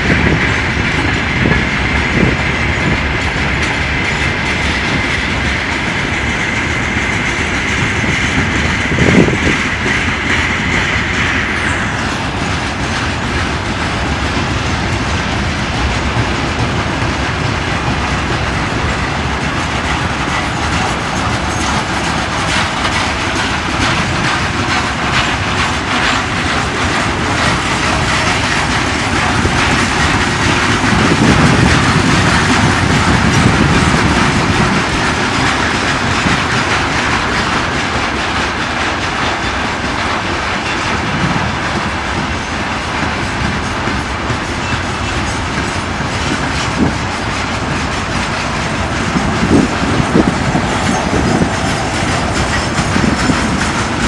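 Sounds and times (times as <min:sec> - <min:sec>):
train wagons rolling past: 0:00.0 - 0:54.0.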